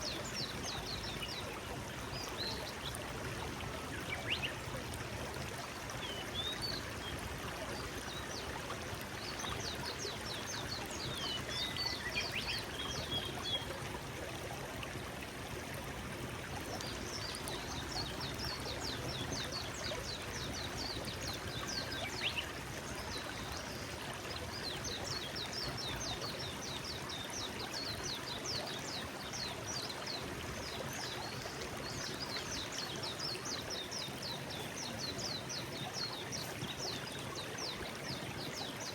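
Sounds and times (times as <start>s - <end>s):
stream flowing over stones: 0.0s - 38.9s.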